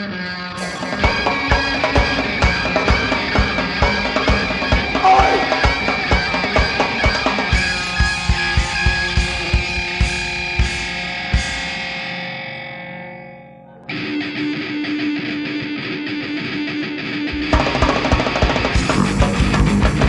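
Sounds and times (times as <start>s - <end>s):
live rock band: 0.0s - 12.2s, 13.9s - 20.0s
distorted electric guitar: 0.0s - 20.0s
steady drum beat: 0.6s - 11.8s, 17.4s - 20.0s.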